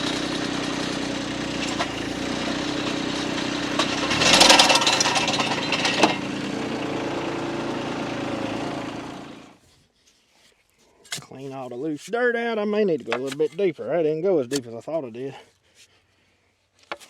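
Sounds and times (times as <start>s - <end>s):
post-hole digger engine running: 0.0s - 9.6s.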